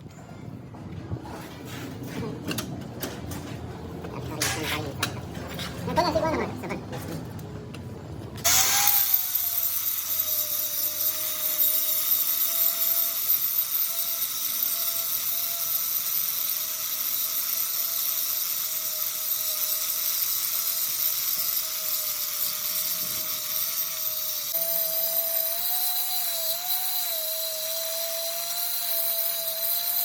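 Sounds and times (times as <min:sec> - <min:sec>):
power tool whining: 0:08.4 - 0:30.0.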